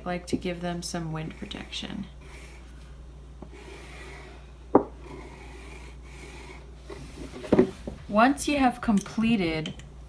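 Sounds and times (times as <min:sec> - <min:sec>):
marker rubbing on cardboard: 0:05.0 - 0:06.6.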